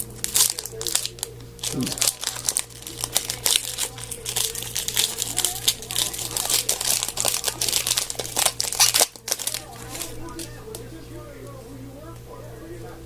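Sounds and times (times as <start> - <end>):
cards rustling and crinkling: 0.0 - 12.3
steady low hum: 0.0 - 13.0.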